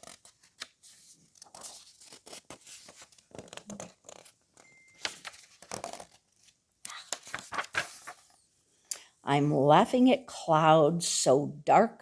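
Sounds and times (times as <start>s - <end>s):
book pages rustling: 0.0s - 8.5s.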